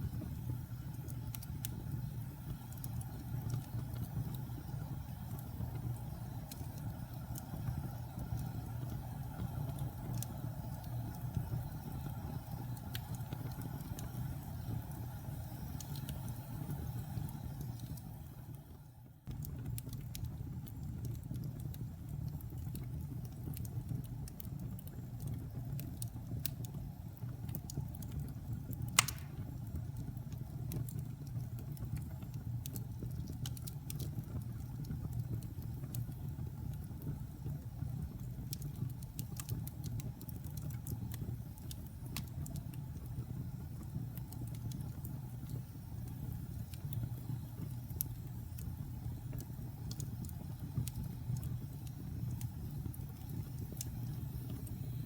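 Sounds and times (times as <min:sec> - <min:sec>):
wood fire crackling: 0:00.0 - 0:55.0
sharp pop from fire: 0:29.0 - 0:29.6.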